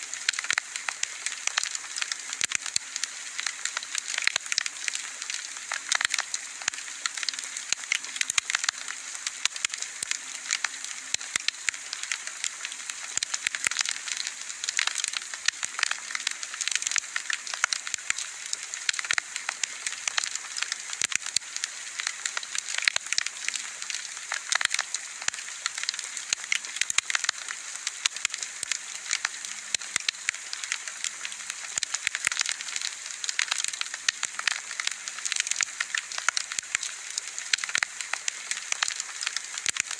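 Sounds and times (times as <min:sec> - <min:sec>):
soft steady hiss: 0:00.0 - 0:39.9
bonfire crackling and popping: 0:00.1 - 0:39.9.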